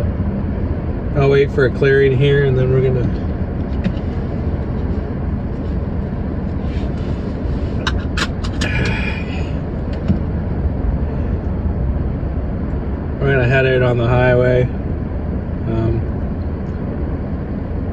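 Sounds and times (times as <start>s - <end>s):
van engine idling: 0.0s - 17.9s.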